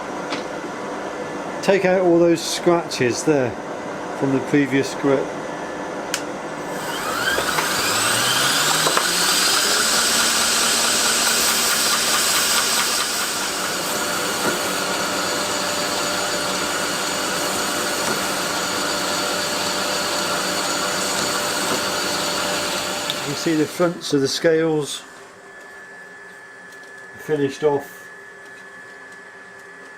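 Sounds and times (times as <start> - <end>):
belt grinder sanding: 6.6 - 23.9.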